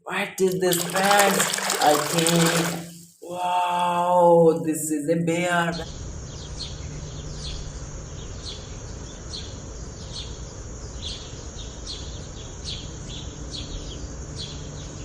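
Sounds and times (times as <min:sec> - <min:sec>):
bird chirping: 0:06.3 - 0:15.0.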